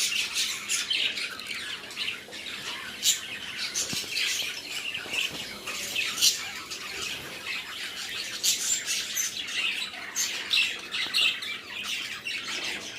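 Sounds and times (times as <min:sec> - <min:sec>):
budgerigars chattering: 0:00.0 - 0:12.9.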